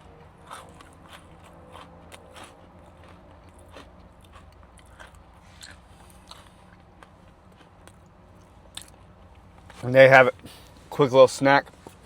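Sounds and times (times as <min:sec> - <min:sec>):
person chewing crunchy bar: 0:00.3 - 0:09.0.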